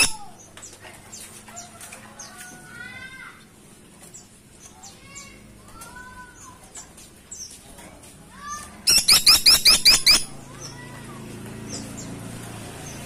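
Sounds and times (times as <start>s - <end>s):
woodpecker rattle: 0.0s - 1.8s, 8.9s - 10.6s
soft bird chirps: 0.0s - 2.5s, 8.8s - 10.9s.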